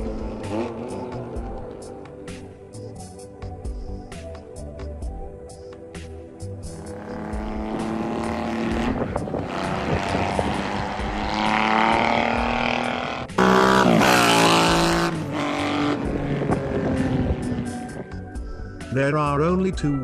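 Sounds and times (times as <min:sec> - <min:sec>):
motorcycle engine accelerating: 0:00.0 - 0:02.5, 0:06.7 - 0:18.5.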